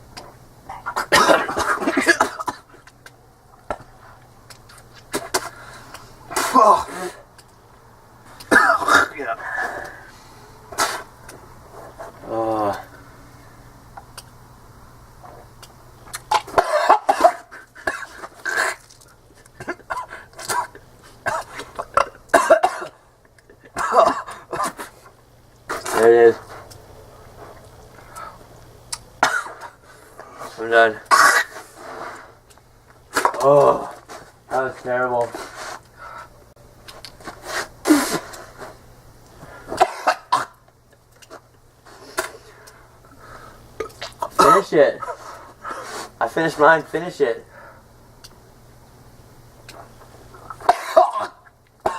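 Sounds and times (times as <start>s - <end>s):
person coughing and retching: 0.7s - 3.0s, 6.3s - 7.3s, 8.5s - 9.3s, 16.1s - 25.1s, 29.2s - 29.8s, 31.0s - 31.7s, 39.7s - 40.6s, 43.8s - 45.2s, 50.4s - 51.9s.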